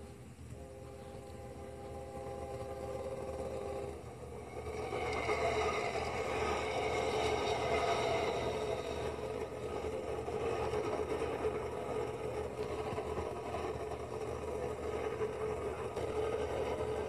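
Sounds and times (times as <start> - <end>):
locomotive air horn chord: 0.0 - 10.3
freight train running past: 0.0 - 17.0.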